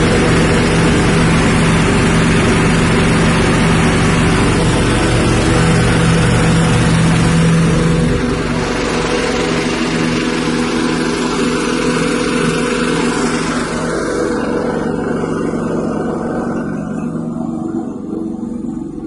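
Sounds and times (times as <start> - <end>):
loud rushing noise: 0.0 - 19.0
small petrol engine running: 0.0 - 19.0.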